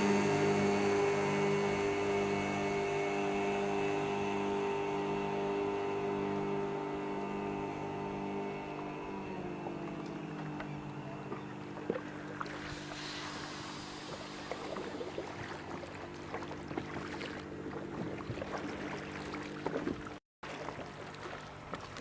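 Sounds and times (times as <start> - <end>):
outboard motor droning: 0.0 - 22.0.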